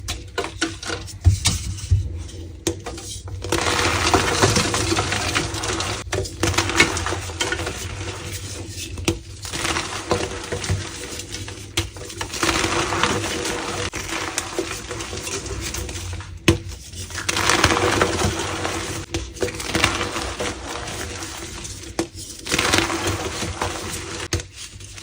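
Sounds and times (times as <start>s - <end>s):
chalk crunching and crumbling: 0.4s - 25.0s.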